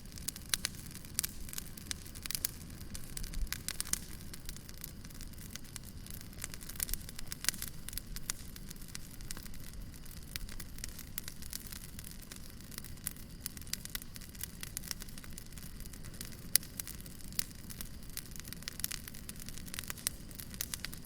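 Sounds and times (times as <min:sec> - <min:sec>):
fire crackling and popping: 0:00.0 - 0:21.0
low rumble of flames: 0:00.0 - 0:21.0.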